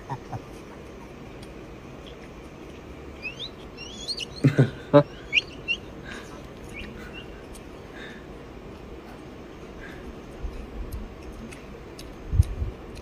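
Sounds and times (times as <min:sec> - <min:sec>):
bird chirping whistled notes: 0:03.2 - 0:04.4, 0:05.1 - 0:05.9
low-pitched bird calls: 0:03.2 - 0:07.4.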